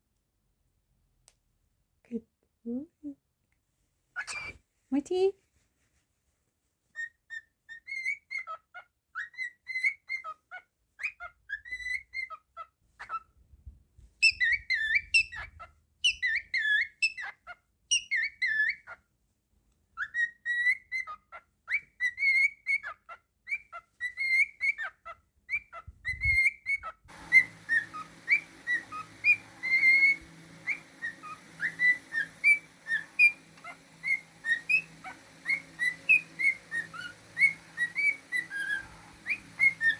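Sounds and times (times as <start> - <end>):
cockatiel whistling a tune: 4.2 - 4.6, 7.0 - 8.6, 9.2 - 10.4, 11.0 - 12.4, 14.2 - 17.3, 17.9 - 19.0, 20.0 - 39.9
steady low hum: 27.1 - 39.9.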